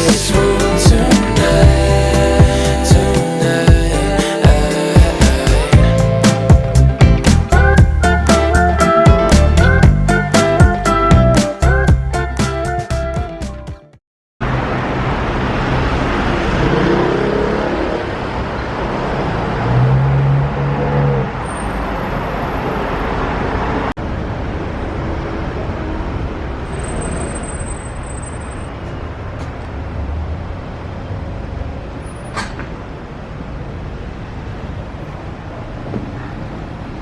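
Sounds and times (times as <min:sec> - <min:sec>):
engine hum: 0:00.0 - 0:12.4
cars and buses on road: 0:00.0 - 0:13.7, 0:14.4 - 0:37.0.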